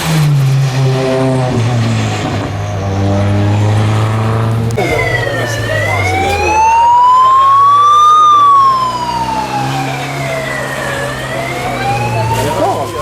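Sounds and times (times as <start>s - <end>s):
low engine drone: 0.0s - 13.0s
siren wailing: 2.8s - 13.0s.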